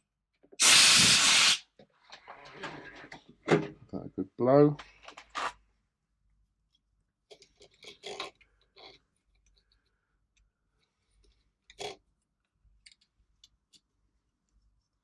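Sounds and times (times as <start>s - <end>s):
hand blower puffs of air: 0.6s - 1.6s.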